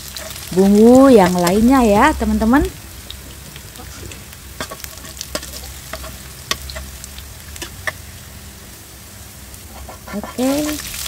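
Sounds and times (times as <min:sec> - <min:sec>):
metal spoon scraping a pan: 0:00.0 - 0:00.5, 0:03.8 - 0:08.0, 0:09.7 - 0:10.8
food sizzling in hot oil: 0:00.0 - 0:11.0.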